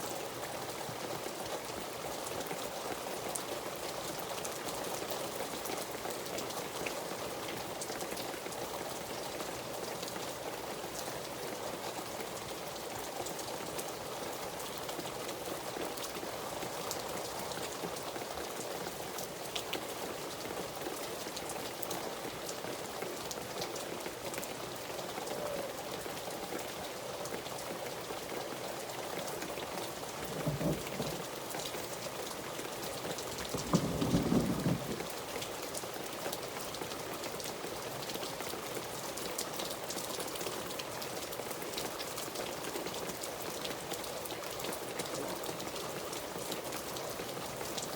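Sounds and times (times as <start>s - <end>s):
rain falling: 0.0s - 47.9s
low rumbling: 33.5s - 35.1s.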